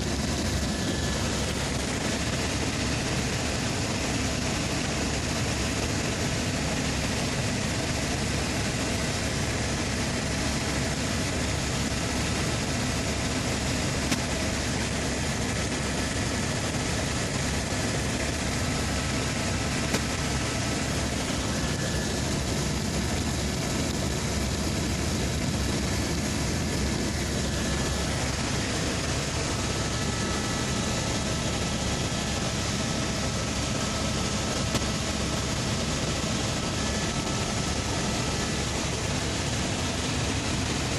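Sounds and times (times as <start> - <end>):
helicopter engine and rotor: 0.0 - 40.9
faint whine: 7.4 - 40.9.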